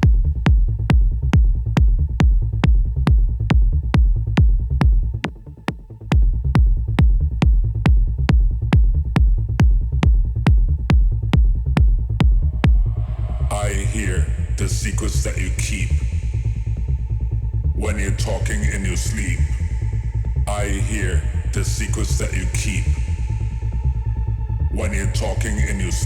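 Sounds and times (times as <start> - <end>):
four-on-the-floor kick drum: 0.0 - 13.0
heavy bass line: 0.0 - 26.0
techno track: 0.0 - 26.0.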